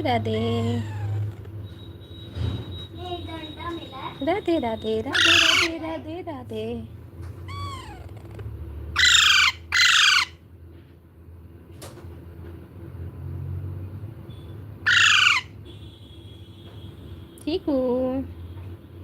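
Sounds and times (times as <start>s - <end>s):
baby parrot squawking: 0.0s - 1.4s, 3.2s - 6.1s, 7.4s - 10.4s, 14.8s - 15.6s.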